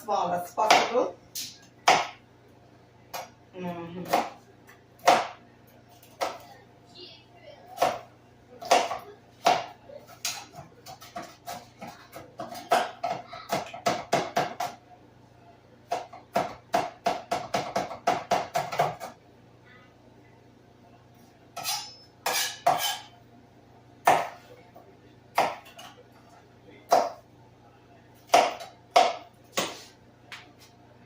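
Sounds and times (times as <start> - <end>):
knife chopping vegetables: 0.6 - 2.2, 4.0 - 5.4, 7.8 - 14.8, 15.9 - 19.2, 21.6 - 23.1, 24.0 - 24.5, 25.3 - 26.0, 26.9 - 27.2, 28.2 - 30.0.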